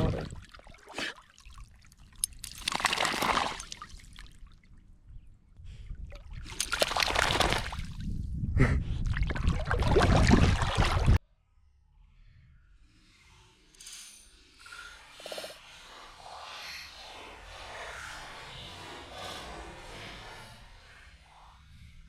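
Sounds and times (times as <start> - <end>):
water splashing and sloshing: 0.0 - 5.0, 5.7 - 8.2, 9.0 - 11.2.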